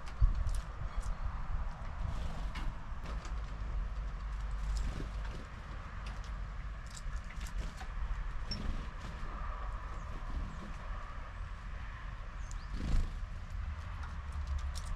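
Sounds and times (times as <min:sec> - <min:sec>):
birds pecking clicks: 0:03.1 - 0:08.7, 0:12.4 - 0:14.9
bird chirp: 0:12.4 - 0:13.1.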